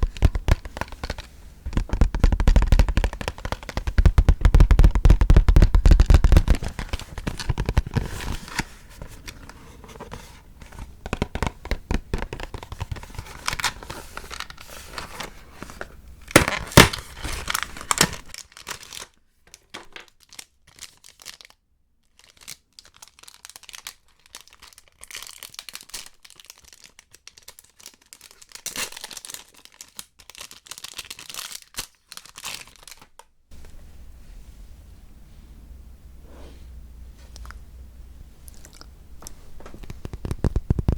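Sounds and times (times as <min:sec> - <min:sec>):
wrapper crinkling: 0:10.7 - 0:33.7
wrapper tearing: 0:12.4 - 0:33.3.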